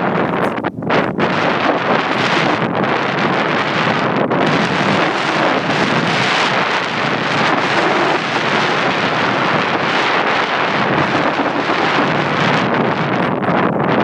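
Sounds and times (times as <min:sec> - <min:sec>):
wind blowing across microphone: 0:00.0 - 0:14.0.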